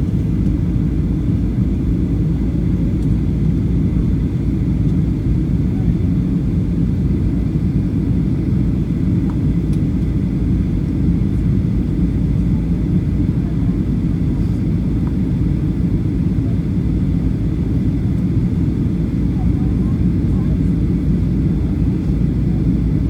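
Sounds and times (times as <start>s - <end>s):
aircraft cabin rumble: 0.0s - 23.0s.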